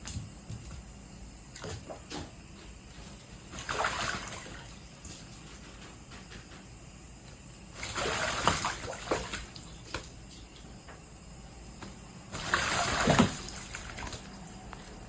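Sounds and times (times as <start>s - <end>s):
crow splashing in water: 3.5s - 4.8s, 7.8s - 10.1s, 12.3s - 14.4s.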